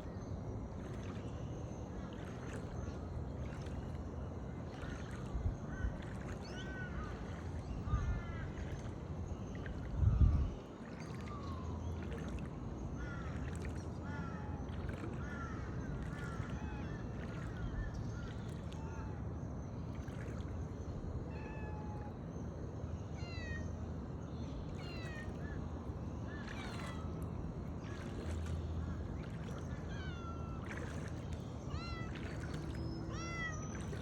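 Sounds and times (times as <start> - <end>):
bird calls: 24.4 - 25.6, 26.2 - 27.2, 27.8 - 34.0.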